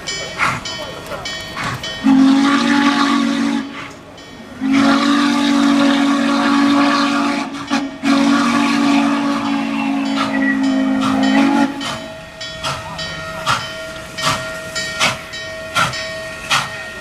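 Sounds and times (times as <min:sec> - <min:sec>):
steady hiss of steam: 0:00.0 - 0:17.0
steam locomotive whistle blasts: 0:02.0 - 0:12.2.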